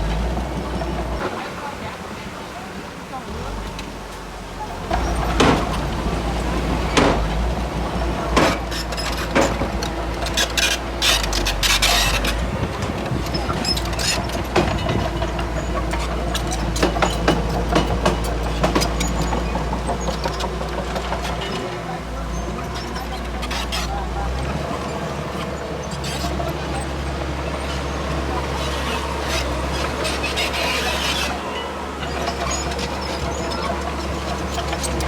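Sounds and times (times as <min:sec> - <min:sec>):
bulldozer diesel engine droning: 0:00.0 - 0:35.0
metallic clanks and knocks: 0:04.9 - 0:21.7.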